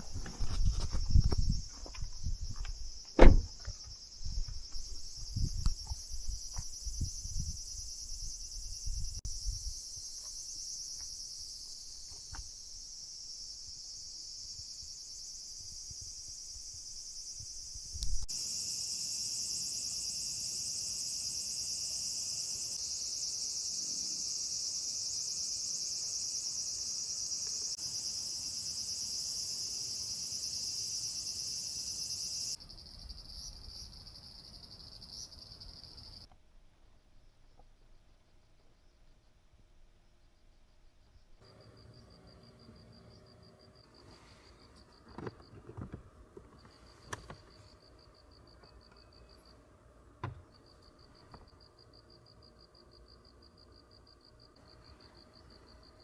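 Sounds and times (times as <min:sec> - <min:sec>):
insects chirring: 0:00.0 - 0:36.3, 0:41.1 - 0:56.0
soft low thuds: 0:00.2 - 0:03.7
loud knock: 0:03.2 - 0:03.5.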